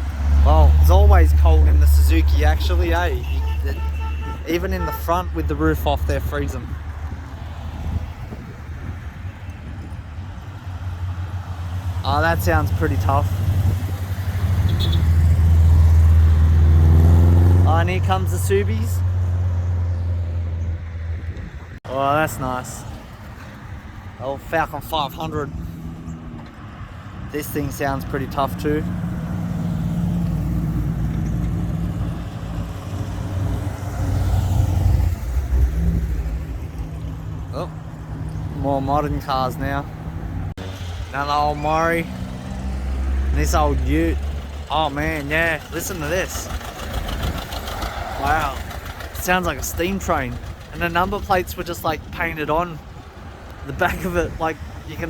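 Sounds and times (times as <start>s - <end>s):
cars rumbling past: 0.0s - 55.0s
wind buffeting microphone: 5.4s - 16.8s, 19.9s - 21.8s.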